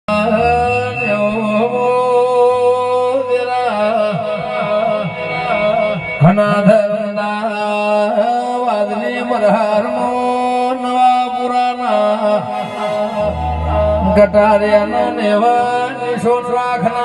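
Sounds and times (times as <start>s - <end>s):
steady drone: 0.1s - 6.2s, 11.8s - 17.0s
drum with swooping pitch: 12.6s - 15.1s.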